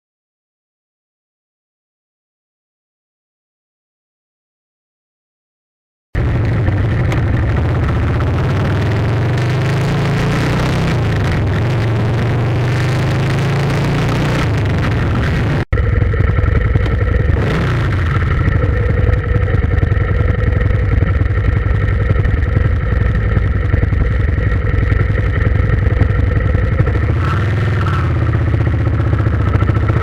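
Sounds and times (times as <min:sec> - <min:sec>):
engine running steadily: 0:06.2 - 0:30.0.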